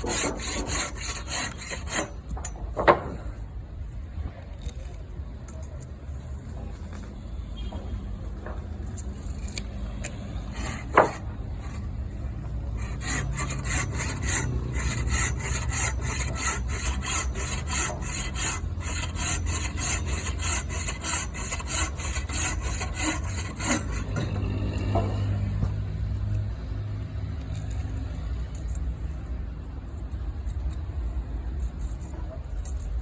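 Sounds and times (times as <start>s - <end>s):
hand saw cutting wood: 0.0s - 2.4s, 10.4s - 11.9s, 12.6s - 25.4s.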